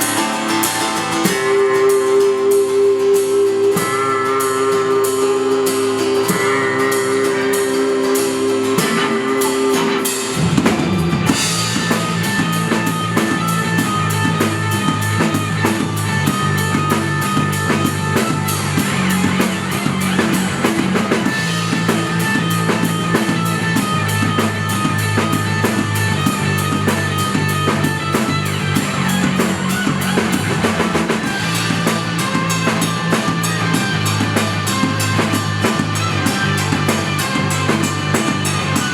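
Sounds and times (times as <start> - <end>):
guitar notes ringing: 0.0 - 38.9
live rock band playing: 0.0 - 38.9
drum crash: 6.2 - 38.9.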